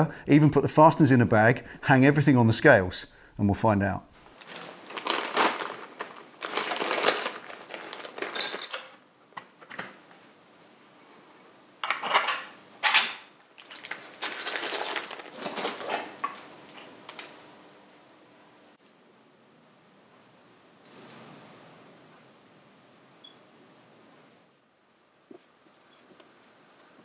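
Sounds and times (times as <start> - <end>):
metal parts clinking and clattering: 4.4 - 9.0, 11.8 - 17.3.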